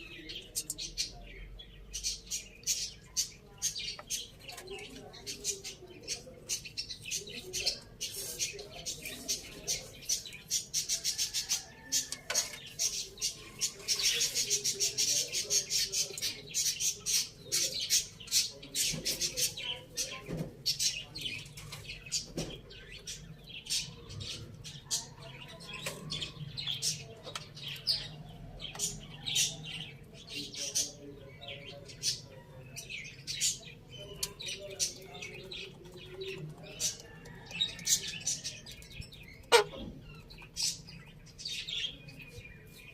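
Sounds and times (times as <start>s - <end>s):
birds chirping: 0.0s - 42.9s.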